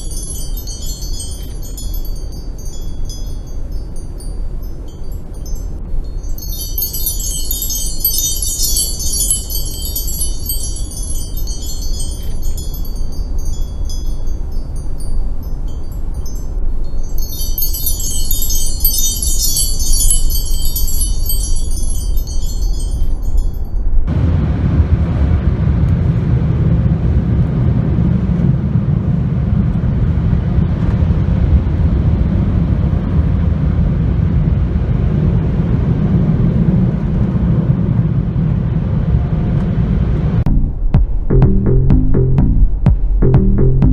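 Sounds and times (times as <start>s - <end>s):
high tinkling chime tones: 0.0s - 24.1s
car wash low rumble: 24.1s - 43.9s.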